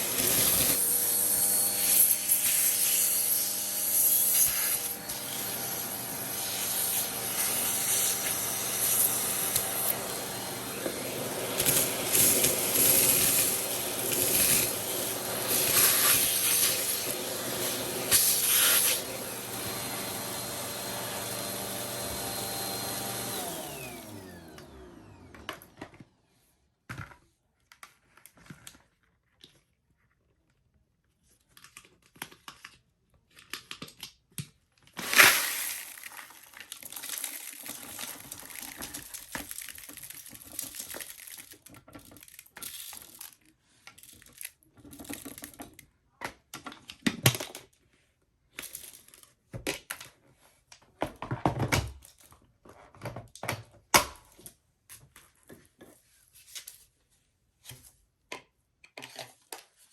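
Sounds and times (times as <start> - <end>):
vacuum motor winding down: 0.0 - 26.0
vacuum cleaner running: 0.0 - 26.2, 35.0 - 41.3
plastic attachments clicking and rattling: 6.4 - 19.0, 31.4 - 47.8.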